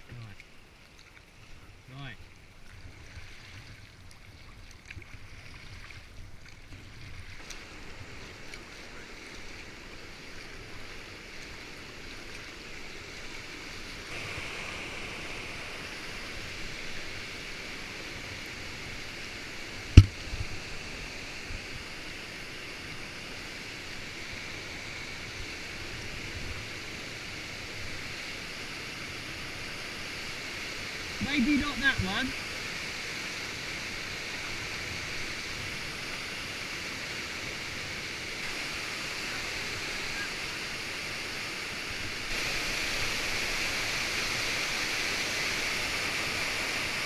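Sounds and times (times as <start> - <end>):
water rushing over a weir: 2.4 - 47.0
sharp knock: 20.0 - 20.2.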